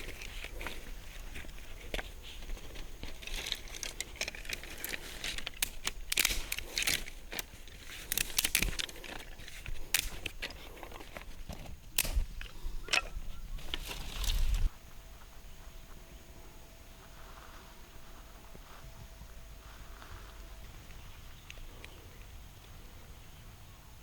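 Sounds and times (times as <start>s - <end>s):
dry leaves and twigs crunching: 0.0s - 14.8s.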